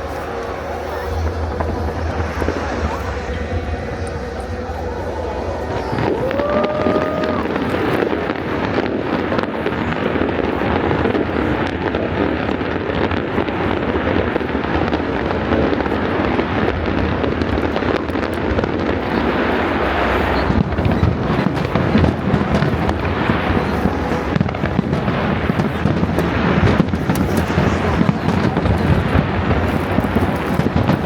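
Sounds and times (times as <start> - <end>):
firework whistle: 0.0 - 10.3, 17.8 - 31.0
fireworks bursting and crackling: 0.0 - 31.0.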